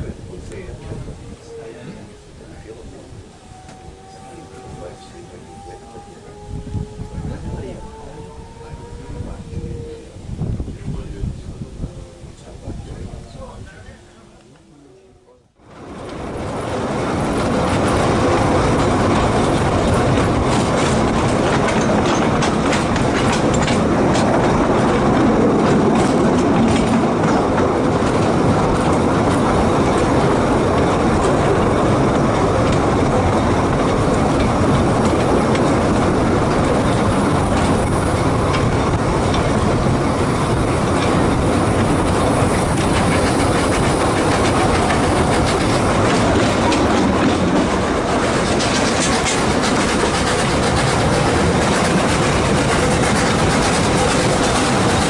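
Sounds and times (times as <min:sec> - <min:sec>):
train wheels clattering over rail joints: 0:15.8 - 0:55.0.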